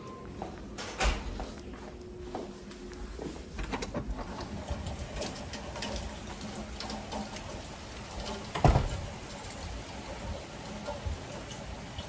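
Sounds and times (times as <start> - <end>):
rain falling: 4.4 - 12.0.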